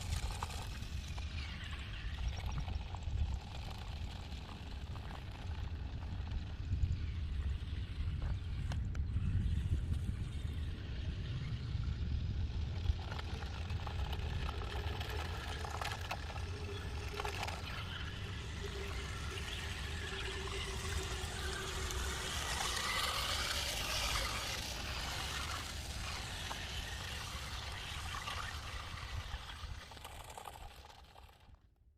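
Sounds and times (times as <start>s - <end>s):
truck engine rumble: 0.0s - 31.5s.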